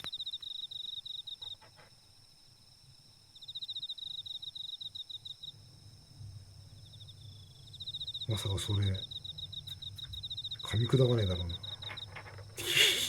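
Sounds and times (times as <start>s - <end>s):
faint high insect tones: 0.0s - 13.0s
insect trilling in rapid pulses: 3.4s - 13.0s.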